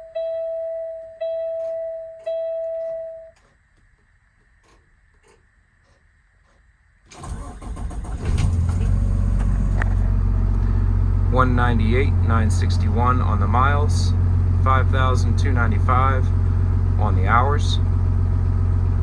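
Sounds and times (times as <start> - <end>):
diesel engine starting and idling: 7.1 - 19.0.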